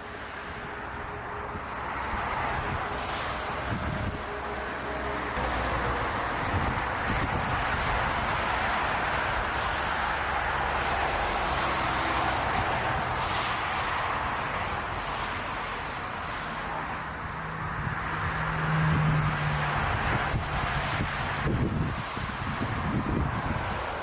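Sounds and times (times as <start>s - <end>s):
wind buffeting microphone: 0.6s - 4.7s, 5.3s - 10.9s, 17.6s - 24.0s.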